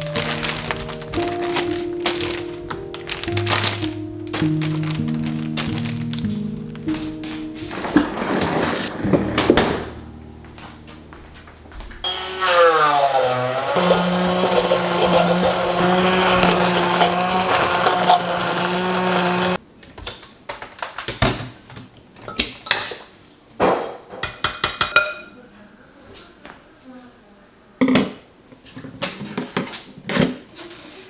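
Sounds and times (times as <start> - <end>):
blender running: 12.0 - 19.6.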